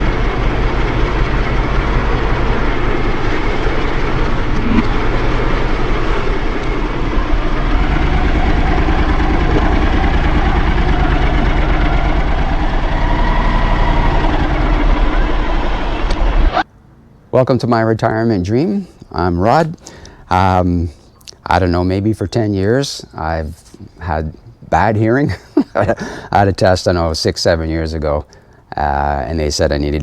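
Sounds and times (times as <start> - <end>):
motorcycle engine running: 0.0 - 16.6
constant rushing noise: 0.0 - 16.7.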